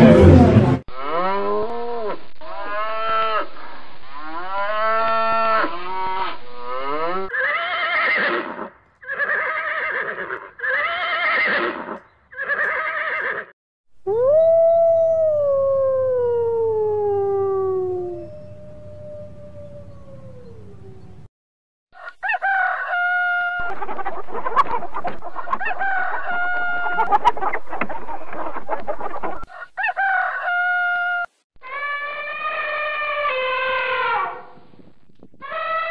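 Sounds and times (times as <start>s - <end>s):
horse whinnies: 7.3s - 13.5s
wolf howling: 14.1s - 21.3s, 22.8s - 34.6s
cow lowing: 17.2s - 21.3s.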